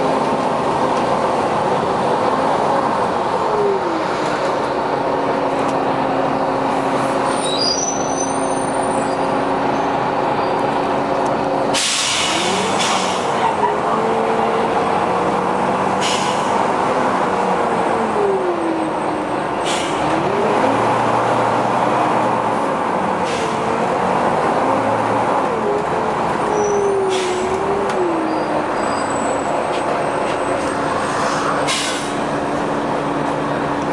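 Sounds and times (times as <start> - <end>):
brief air hisses: 11.8 - 13.2, 31.2 - 32.2.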